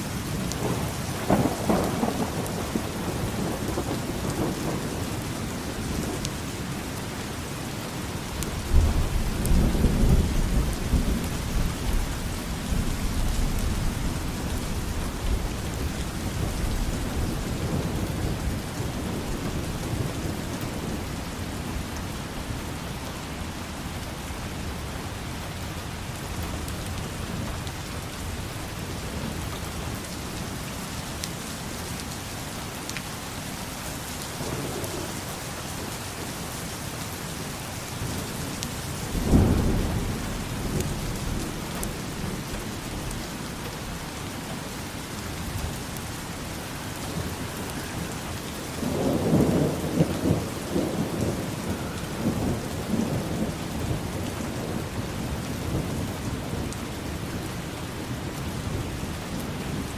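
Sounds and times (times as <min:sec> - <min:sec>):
steady rain: 0:00.0 - 0:59.9
rolling thunder rumble: 0:00.3 - 0:06.2, 0:08.5 - 0:22.0, 0:34.1 - 0:37.2, 0:37.8 - 0:44.2, 0:47.0 - 0:57.2.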